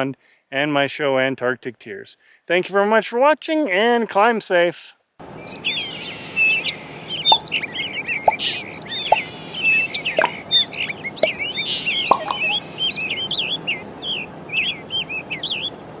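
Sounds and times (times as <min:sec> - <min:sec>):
small birds chirping: 0:05.2 - 0:16.0.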